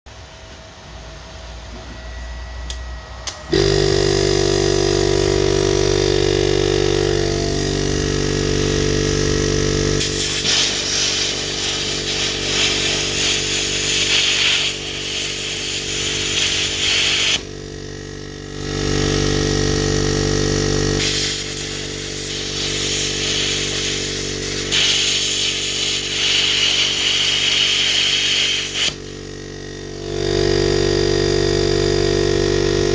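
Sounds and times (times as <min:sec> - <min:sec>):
air compressor humming: 0:00.1 - 0:32.9
plasma torch hissing: 0:10.0 - 0:17.5, 0:21.0 - 0:29.1.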